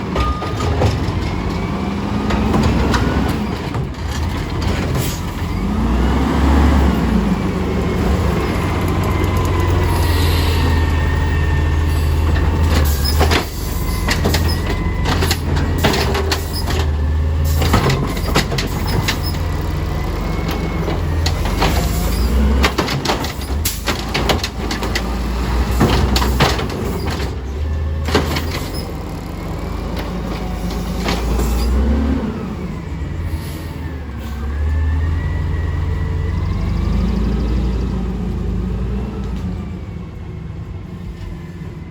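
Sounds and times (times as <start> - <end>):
garbage truck diesel engine: 0.0 - 41.9
metallic clanks and bangs: 12.2 - 19.5, 20.9 - 29.0.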